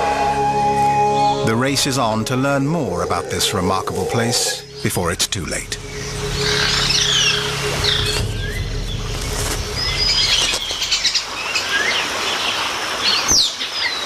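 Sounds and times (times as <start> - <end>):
low hum: 0.0 - 12.0
birds chirping and whistling: 0.5 - 14.0
fast pulsing bird trill: 1.7 - 12.0.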